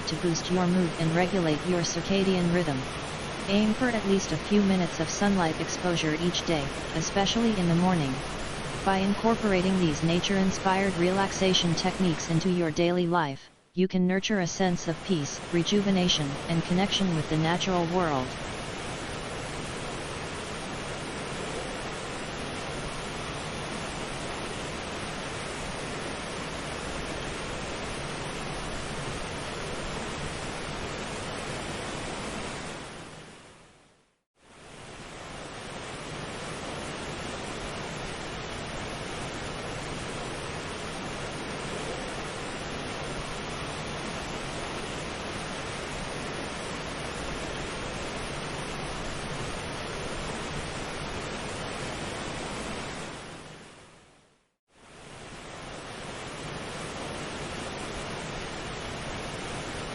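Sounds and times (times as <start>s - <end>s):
ocean surf rushing: 0.0s - 13.2s
rushing surf-like ambience: 0.0s - 59.9s.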